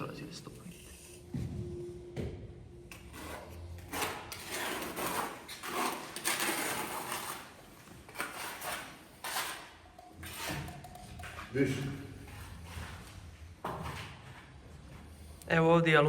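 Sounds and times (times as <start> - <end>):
stone scraping and sliding: 3.2 - 11.0.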